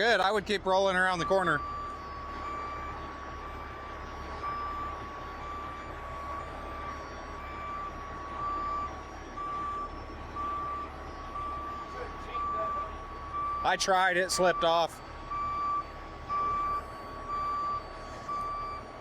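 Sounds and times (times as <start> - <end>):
diesel engine running: 0.0 - 19.0
truck backup alarm beeping: 0.0 - 19.0.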